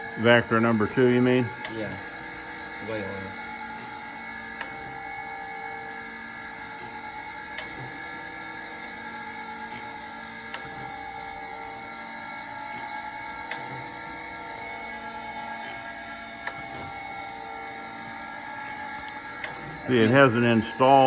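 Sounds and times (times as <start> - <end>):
surface grinder humming: 13.7 - 21.0.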